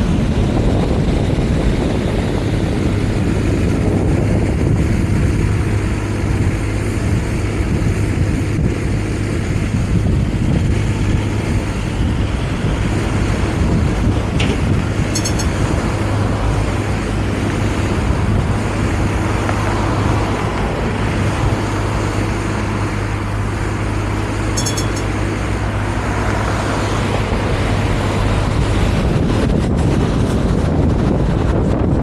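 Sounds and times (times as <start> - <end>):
steady hum: 0.0 - 32.0
tram wheels rumbling on rails: 0.0 - 32.0
high-pitched chirps: 15.2 - 15.6, 24.6 - 25.1.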